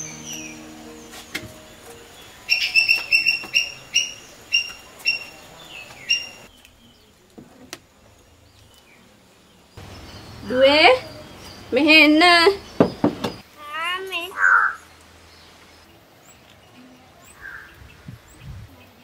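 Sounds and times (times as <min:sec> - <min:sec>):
bird chirping: 0:00.0 - 0:07.3, 0:08.2 - 0:13.4.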